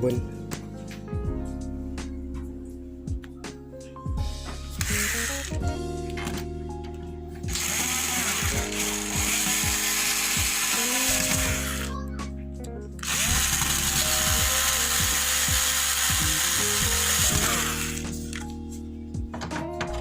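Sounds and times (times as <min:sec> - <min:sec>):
background music: 0:00.0 - 0:20.0
power screwdriver running: 0:04.8 - 0:06.4, 0:07.5 - 0:12.0, 0:13.0 - 0:18.4.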